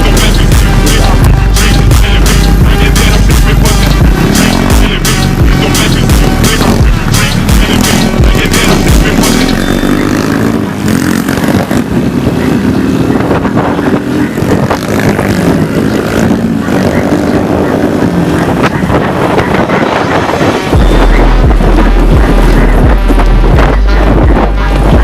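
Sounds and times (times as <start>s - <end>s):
small motorcycle engine revving: 0.0s - 18.6s.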